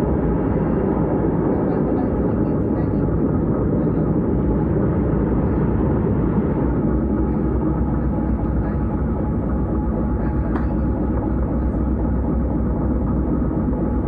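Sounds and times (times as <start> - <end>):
electric train rumbling on track: 0.0 - 14.0.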